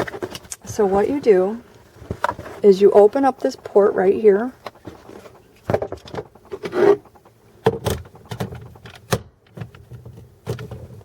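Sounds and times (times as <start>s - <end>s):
device handling clicks and knocks: 7.6s - 11.0s.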